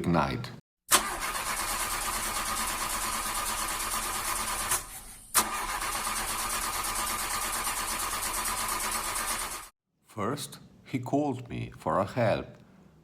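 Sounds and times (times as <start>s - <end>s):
car engine cranking: 0.9s - 9.5s.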